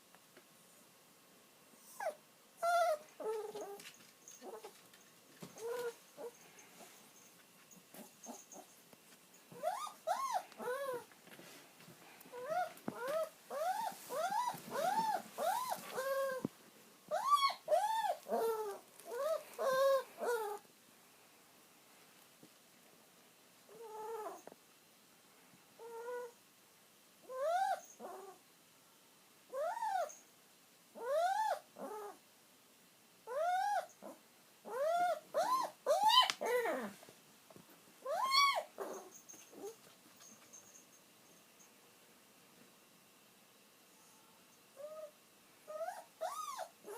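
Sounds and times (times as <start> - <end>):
dog whining: 1.8 - 3.8, 5.6 - 6.4, 9.5 - 11.1, 12.3 - 16.5, 17.1 - 20.6, 23.7 - 24.4, 25.8 - 26.4, 27.3 - 28.4, 29.5 - 30.2, 31.0 - 32.2, 33.3 - 37.0, 38.0 - 40.5, 44.8 - 46.9.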